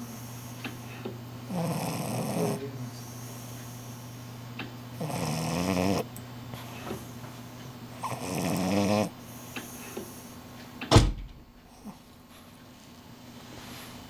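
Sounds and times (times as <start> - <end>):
dog snoring: 0.0 - 4.3, 4.9 - 7.1, 7.9 - 10.4, 11.7 - 12.0
sharp thump: 10.9 - 11.4.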